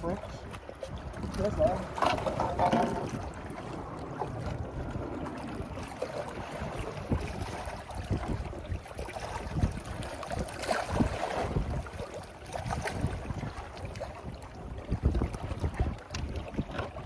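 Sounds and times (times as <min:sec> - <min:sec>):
water washing: 0:00.0 - 0:13.1
wind buffeting microphone: 0:00.0 - 0:17.0.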